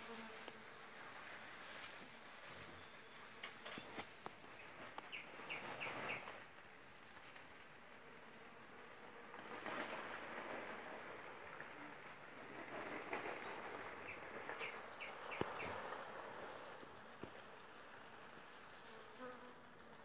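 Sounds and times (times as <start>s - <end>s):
bird chirping: 13.3s - 16.2s.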